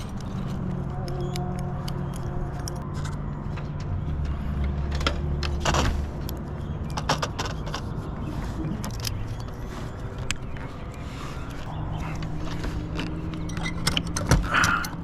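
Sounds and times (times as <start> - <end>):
vehicle engine idling: 0.0 - 15.0
hardware clicking and jangling: 8.7 - 15.0.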